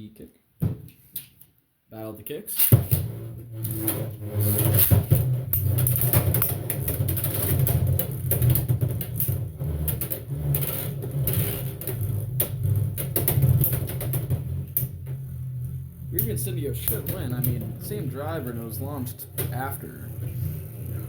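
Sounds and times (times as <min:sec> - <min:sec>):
spinning tops clacking: 0:02.6 - 0:03.0
spinning tops whirring: 0:02.6 - 0:21.0.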